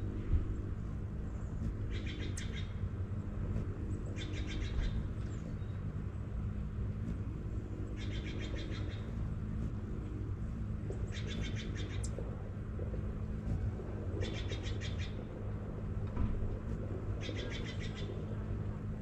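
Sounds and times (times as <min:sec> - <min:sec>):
steady low hum: 0:00.0 - 0:19.0
small bird rattling trill: 0:00.1 - 0:16.0, 0:16.6 - 0:18.4.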